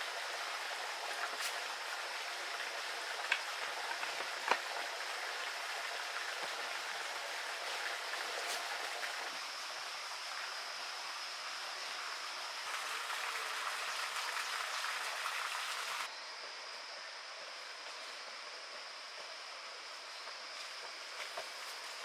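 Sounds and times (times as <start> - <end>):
stream water rushing: 0.0 - 16.1.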